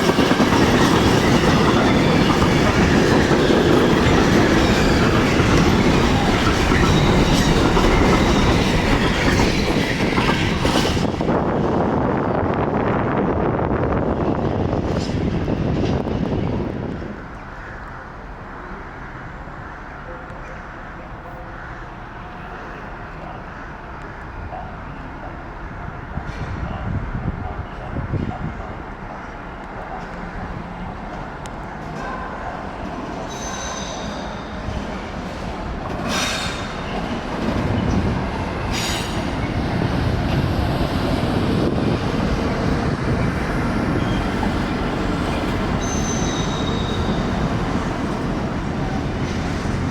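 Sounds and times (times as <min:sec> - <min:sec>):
train wheels rumbling on rails: 0:00.0 - 0:18.5, 0:21.9 - 0:49.9
high-pitched squeal: 0:43.0 - 0:47.9.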